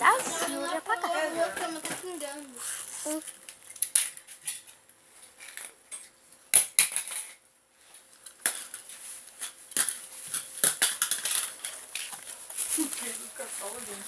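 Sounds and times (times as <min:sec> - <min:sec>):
small objects clicking and clattering: 0:08.2 - 0:13.3.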